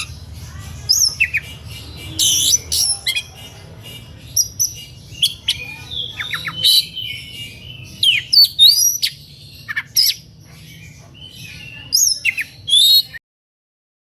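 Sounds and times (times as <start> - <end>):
bird singing whistled notes: 0.9 - 3.4, 4.3 - 10.2, 10.8 - 13.2.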